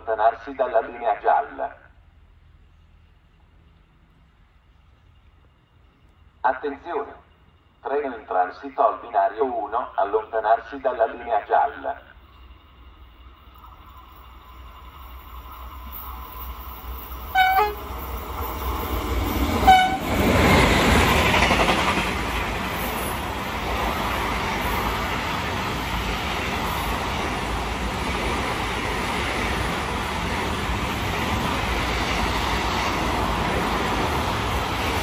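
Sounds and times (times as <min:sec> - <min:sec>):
locomotive rushing past: 0:11.7 - 0:35.0
train horn blasts: 0:17.3 - 0:17.9, 0:19.6 - 0:20.3.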